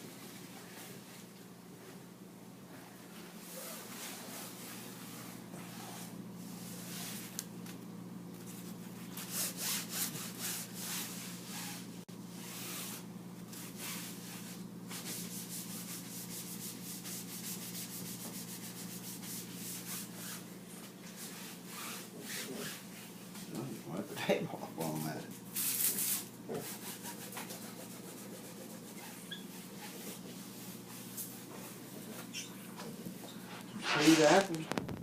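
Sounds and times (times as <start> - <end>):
surface being scrubbed: 33.8 - 34.8.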